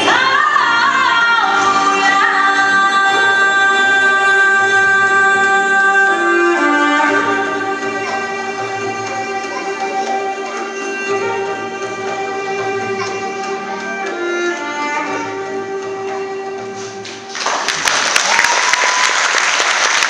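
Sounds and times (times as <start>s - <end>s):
woman singing: 0.0s - 9.4s
instrumental accompaniment: 0.0s - 18.0s.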